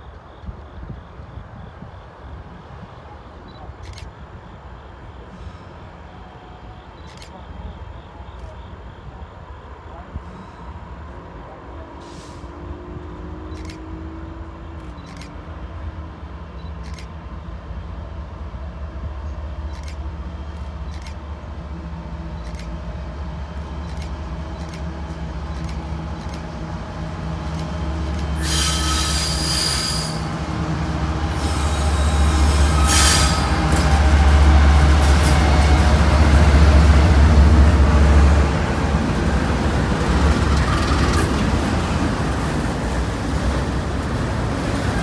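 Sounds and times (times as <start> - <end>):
diesel locomotive engines droning: 0.0 - 45.0
high-pitched wheel squeal: 28.4 - 30.2, 31.4 - 33.5.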